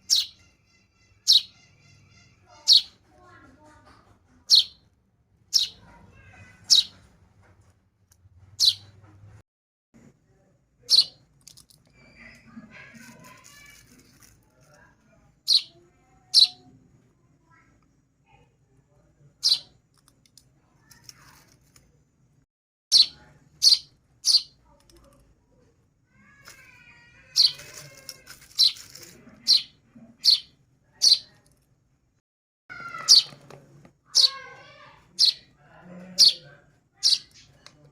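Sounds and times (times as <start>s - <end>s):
bird chicks peeping: 0.0s - 3.0s, 4.5s - 4.8s, 5.5s - 7.1s, 8.6s - 9.0s, 10.9s - 11.2s, 15.5s - 16.6s, 22.9s - 24.6s, 27.3s - 31.3s, 32.7s - 33.5s, 34.1s - 35.5s, 36.2s - 37.6s.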